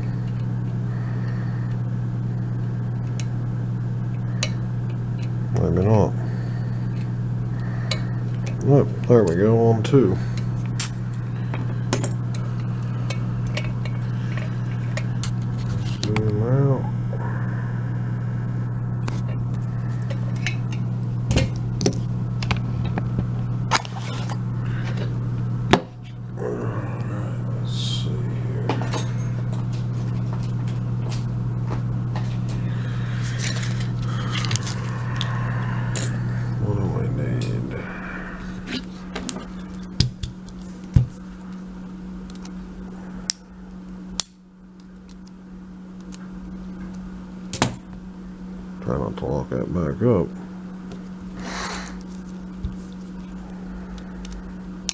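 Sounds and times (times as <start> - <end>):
low electrical hum: 0.0 - 54.9.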